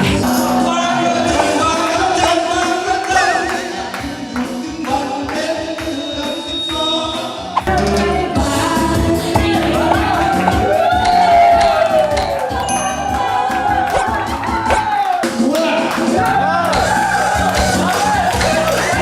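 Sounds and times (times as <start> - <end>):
person singing into a microphone: 0.0 - 12.0
karaoke backing music: 0.0 - 19.0.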